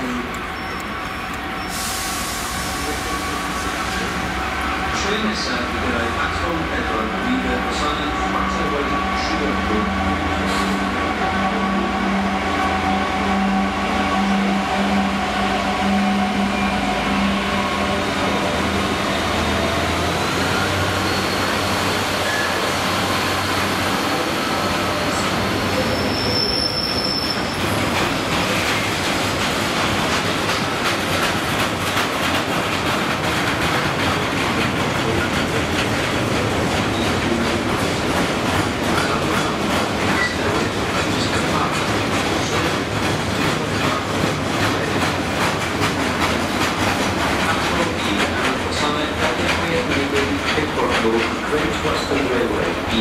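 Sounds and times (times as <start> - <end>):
high wheel squeal: 0.5 - 4.1, 19.0 - 27.9
freight wagons rumbling: 15.9 - 53.0.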